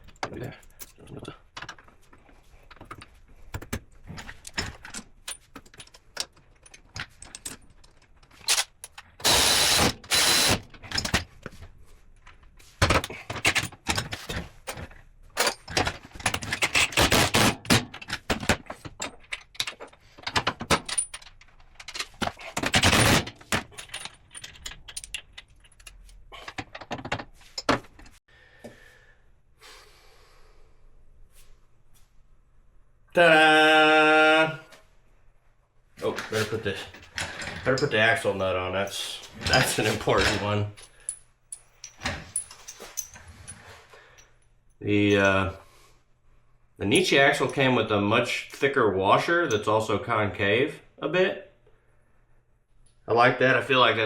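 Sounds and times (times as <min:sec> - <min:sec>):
metal parts clinking and rattling: 0:00.0 - 0:28.2, 0:38.8 - 0:45.4
rasping tool noise: 0:09.2 - 0:10.6.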